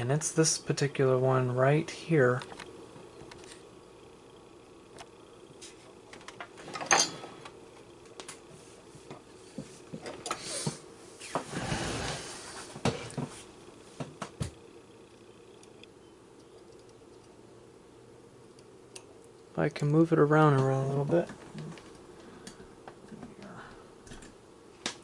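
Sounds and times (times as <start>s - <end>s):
knocks and clicks on fan motor: 2.3s - 3.6s, 4.9s - 10.8s, 14.0s - 17.4s, 18.5s - 25.0s.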